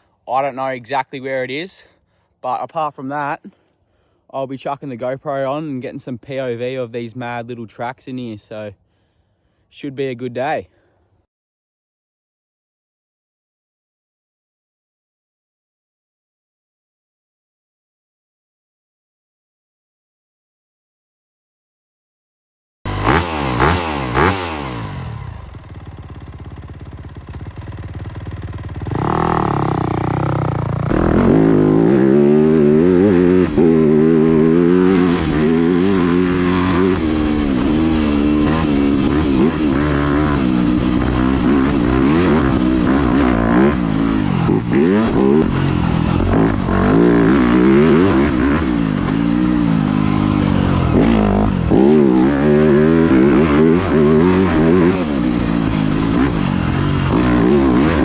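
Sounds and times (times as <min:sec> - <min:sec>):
dirt bike engine revving: 0:22.9 - 0:58.0.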